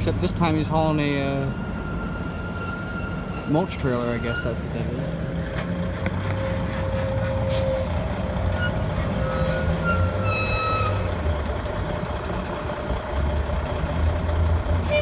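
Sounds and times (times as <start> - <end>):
truck diesel engine passing: 4.6 - 15.0
air brake hiss: 7.5 - 11.1.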